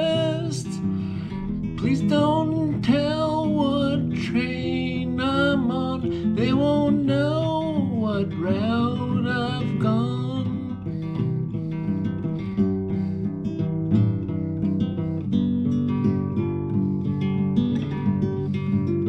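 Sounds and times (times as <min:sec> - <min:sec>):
person singing: 0:00.0 - 0:10.8
acoustic guitar playing: 0:00.0 - 0:19.0.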